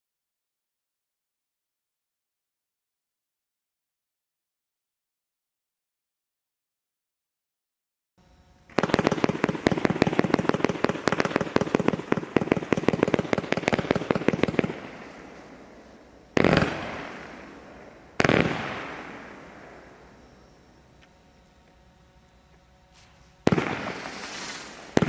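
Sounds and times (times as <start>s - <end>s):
fireworks rapid shots: 8.7s - 19.9s, 23.0s - 25.0s
loud firework bangs echoing: 8.7s - 20.2s, 23.4s - 25.0s.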